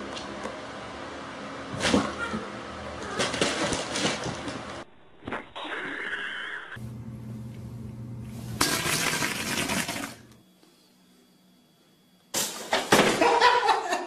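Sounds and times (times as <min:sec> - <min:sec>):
steady low hum: 0:04.3 - 0:12.7.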